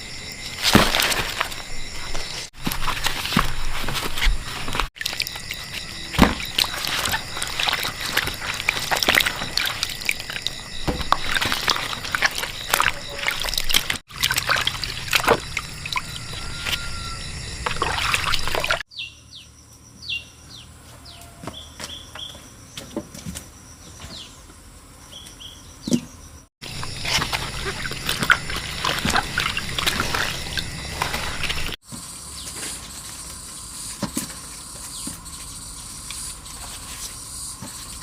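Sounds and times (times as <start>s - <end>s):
water sloshing and pouring: 0.6s - 18.8s, 26.6s - 31.8s
bird chirps: 15.4s - 22.8s.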